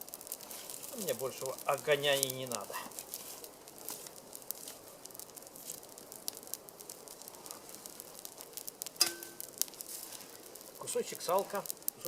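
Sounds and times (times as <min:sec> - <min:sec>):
campfire crackling: 0:00.0 - 0:12.0
sharp ringing knock: 0:09.0 - 0:09.4.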